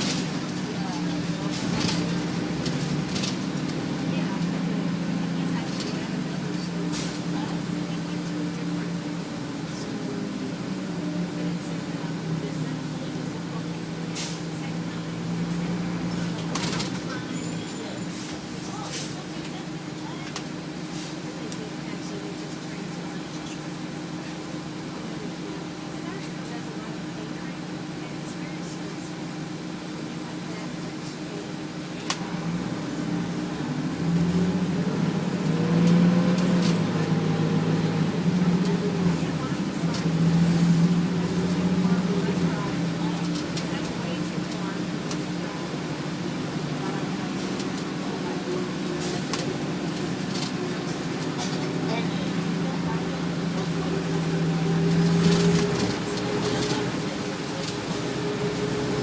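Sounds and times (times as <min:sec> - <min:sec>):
bus engine hum: 0:00.0 - 0:59.0.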